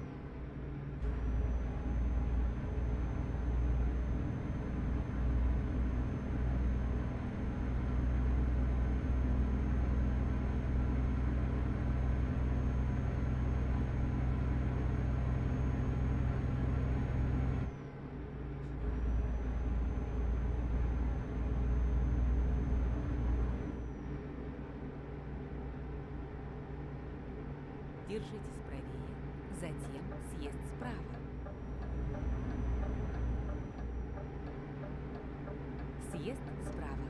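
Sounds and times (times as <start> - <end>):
truck engine droning: 0.0 - 37.0.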